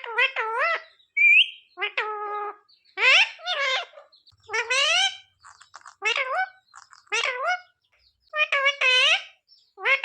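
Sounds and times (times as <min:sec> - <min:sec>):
parakeet talking: 0:00.0 - 0:10.0.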